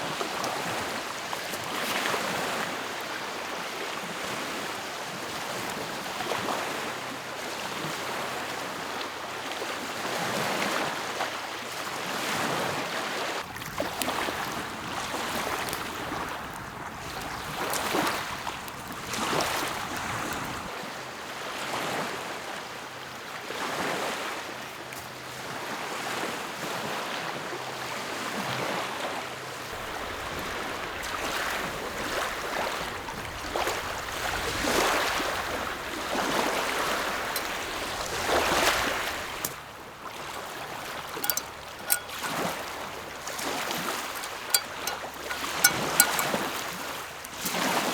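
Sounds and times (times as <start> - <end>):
lake waves washing onto shore: 13.1 - 20.7, 29.7 - 47.9.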